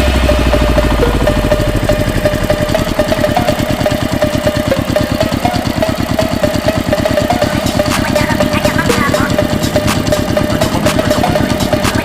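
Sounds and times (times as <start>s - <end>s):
small tractor engine running: 0.0s - 12.0s.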